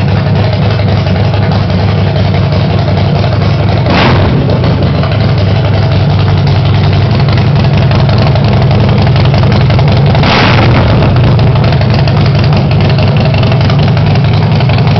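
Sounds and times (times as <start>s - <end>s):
motorcycle engine idling: 0.0s - 14.9s.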